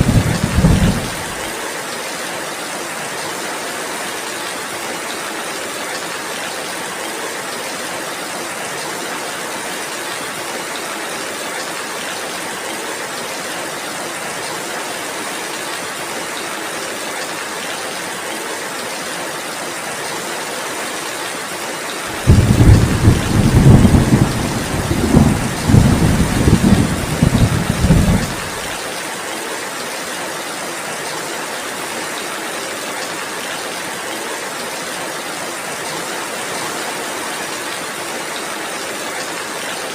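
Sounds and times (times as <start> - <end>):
thunder rumbling: 0.0 - 1.5, 22.1 - 28.8
heavy rain: 0.0 - 39.9.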